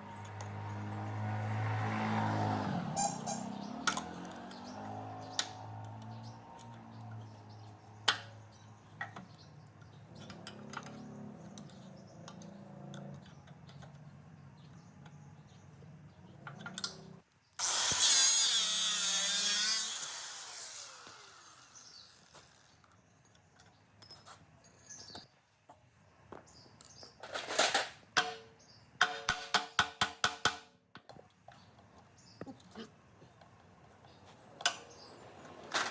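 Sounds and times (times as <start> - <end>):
power tool running: 17.6 - 22.8.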